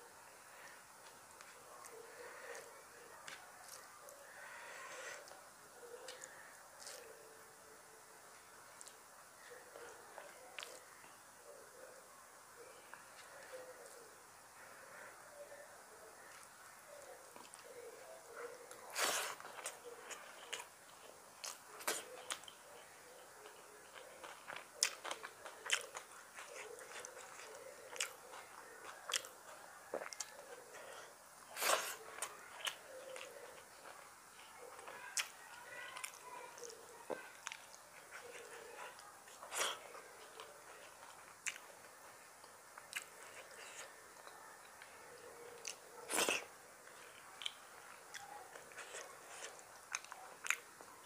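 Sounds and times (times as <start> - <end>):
person chewing: 0.7 - 7.1, 16.2 - 35.4, 36.0 - 50.9.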